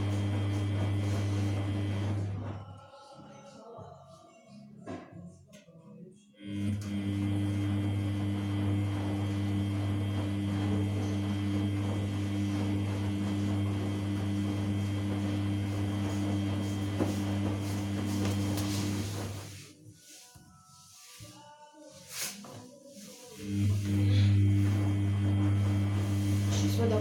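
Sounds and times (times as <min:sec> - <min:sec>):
drain pump humming: 0:00.0 - 0:02.6, 0:06.4 - 0:19.6, 0:23.4 - 0:27.0.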